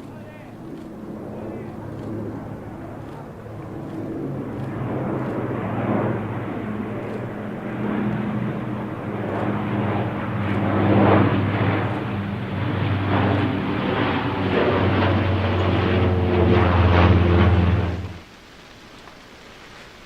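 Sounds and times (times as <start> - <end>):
propeller aircraft engines droning: 0.0 - 19.2
rushing air noise: 4.5 - 18.3.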